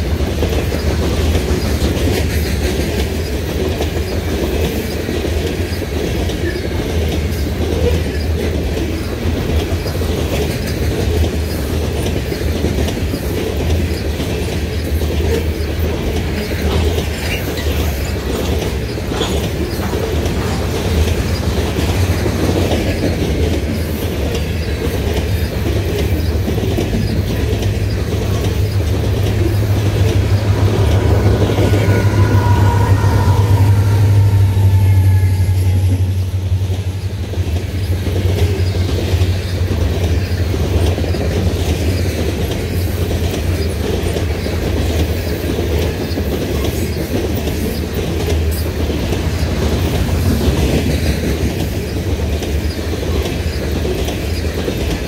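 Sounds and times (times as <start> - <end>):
steel wheels rumbling on rail: 0.0 - 55.0
wheels clicking on rail: 0.0 - 55.0
faint wavering wheel squeal: 29.6 - 36.6.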